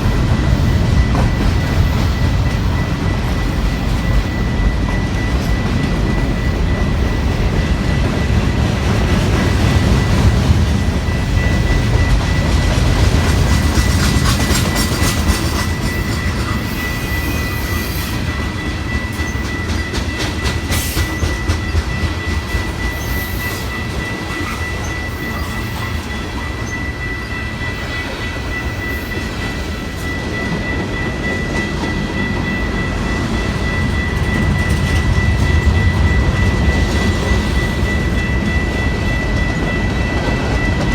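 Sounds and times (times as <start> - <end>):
train rumbling past: 0.0 - 40.9.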